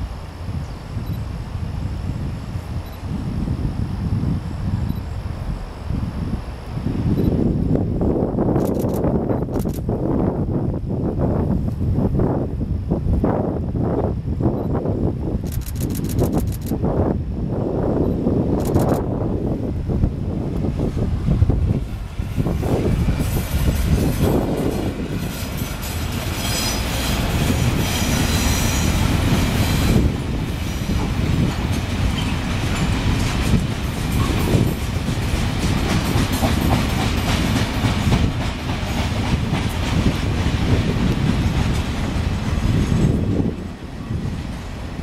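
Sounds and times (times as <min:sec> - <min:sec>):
wheels clacking over rail joints: 0:22.0 - 0:43.2
high wheel squeal: 0:25.2 - 0:29.0.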